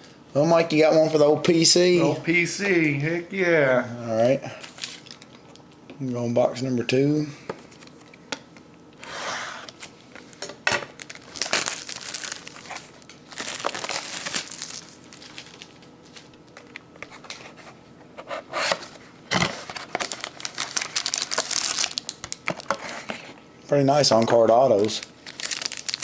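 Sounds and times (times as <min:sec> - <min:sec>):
packaging crinkling and tearing: 0:09.7 - 0:16.8, 0:19.3 - 0:22.8, 0:24.7 - 0:26.0.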